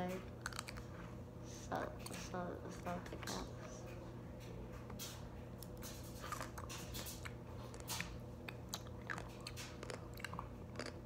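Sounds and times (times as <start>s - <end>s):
person chewing: 0.3s - 1.0s, 5.6s - 11.0s
wet mouth clicks and smacks: 0.4s - 0.9s, 5.6s - 11.0s.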